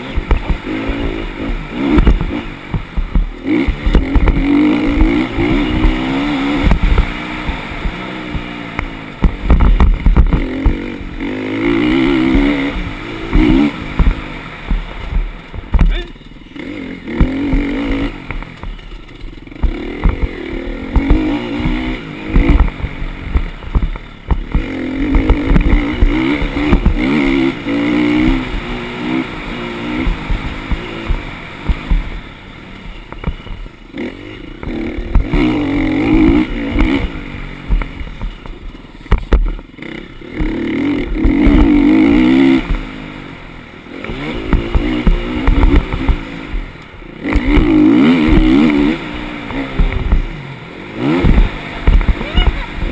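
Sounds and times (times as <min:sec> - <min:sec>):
low thumps: 0:00.0 - 0:11.2, 0:11.8 - 0:16.1, 0:17.1 - 0:29.0, 0:29.9 - 0:32.3, 0:40.4 - 0:43.2, 0:44.0 - 0:52.9
dirt bike engine revving: 0:00.0 - 0:52.9.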